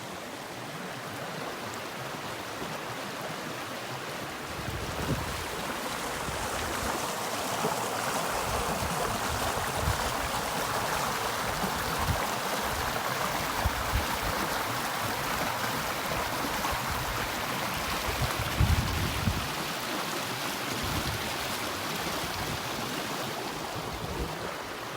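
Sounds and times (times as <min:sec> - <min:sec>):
river water flowing: 0:00.0 - 0:24.9.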